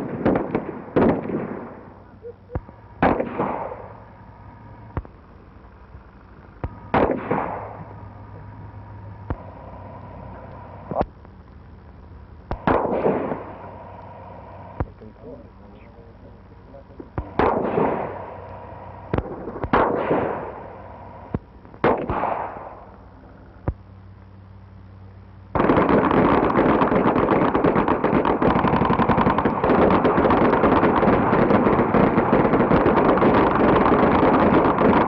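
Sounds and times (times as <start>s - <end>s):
rapid automatic gunfire: 0.0s - 1.9s, 3.0s - 3.9s, 6.9s - 7.8s, 12.5s - 13.8s, 17.2s - 20.8s, 21.8s - 22.8s, 25.6s - 35.0s
gunshots echoing: 0.0s - 2.0s, 2.6s - 4.0s, 6.6s - 8.6s, 12.5s - 14.9s, 17.2s - 22.9s, 25.6s - 35.0s
steady hum: 0.0s - 35.0s.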